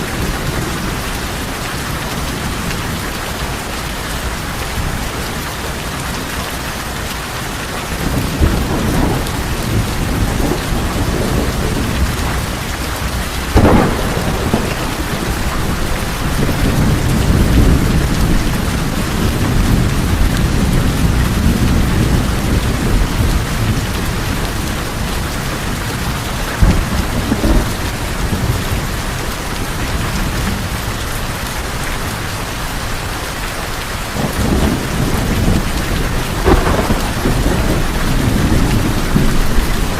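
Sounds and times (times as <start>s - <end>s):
heavy rain on a tin roof: 0.0s - 39.9s
thunder rumbling: 7.8s - 33.1s, 33.8s - 39.9s
sharp thunder cracks: 8.1s - 18.4s, 34.2s - 39.9s.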